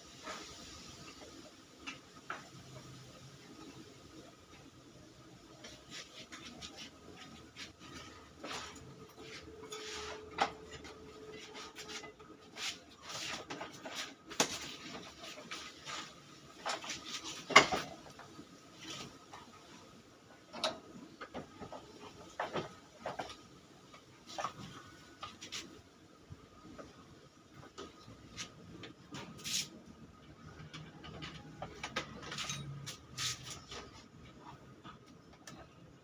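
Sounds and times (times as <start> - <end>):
metal parts and tools clinking: 31.0 - 33.7.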